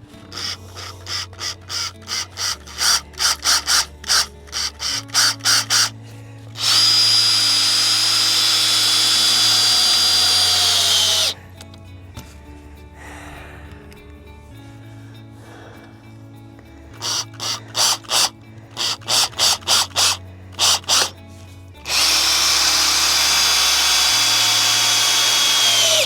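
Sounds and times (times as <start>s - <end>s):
power drill whining: 0.0s - 11.4s, 17.0s - 21.2s, 21.8s - 26.0s.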